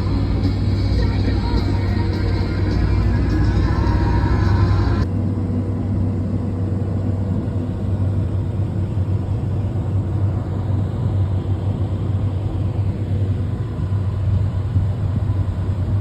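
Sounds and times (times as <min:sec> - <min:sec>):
tractor diesel engine running: 0:00.0 - 0:05.1.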